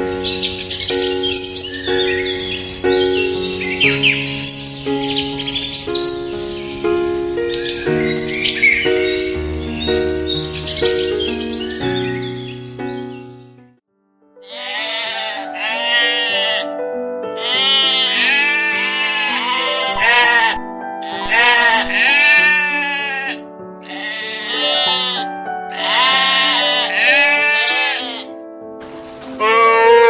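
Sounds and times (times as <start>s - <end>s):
background music with held notes: 0.0s - 13.8s, 14.4s - 30.0s
sheep bleating: 14.4s - 16.7s, 17.4s - 28.3s, 29.4s - 30.0s.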